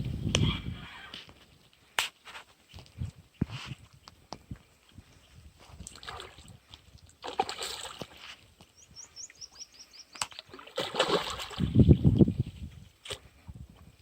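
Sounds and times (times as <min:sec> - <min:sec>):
water splashing: 0:05.8 - 0:08.4, 0:10.2 - 0:12.2.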